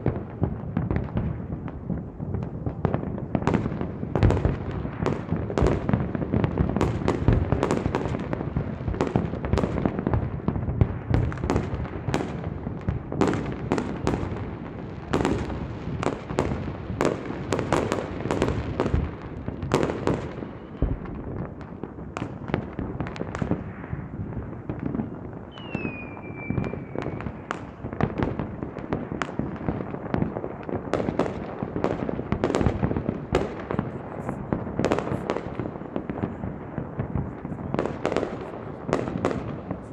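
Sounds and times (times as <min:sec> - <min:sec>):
fireworks bangs: 0:00.0 - 0:39.9
falling whistle: 0:25.5 - 0:27.3.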